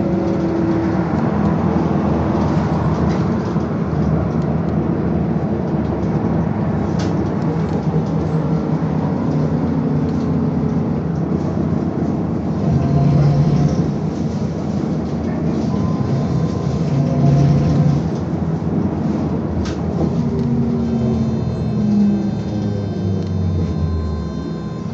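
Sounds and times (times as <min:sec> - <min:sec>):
trolleybus tyre and body rumble: 0:00.0 - 0:24.9.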